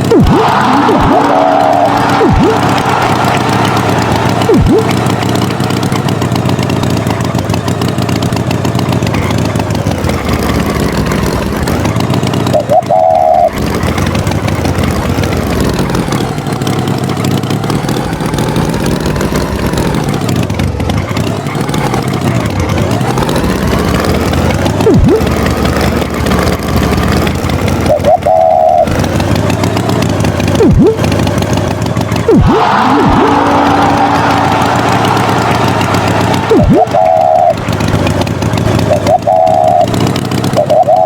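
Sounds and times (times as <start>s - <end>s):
falling whistle-like tones: 0.0s - 6.1s, 12.4s - 13.6s, 24.8s - 25.3s, 27.9s - 28.9s, 30.6s - 31.0s, 32.3s - 37.7s, 38.9s - 41.0s
cartoon tractor engine running: 0.0s - 41.0s.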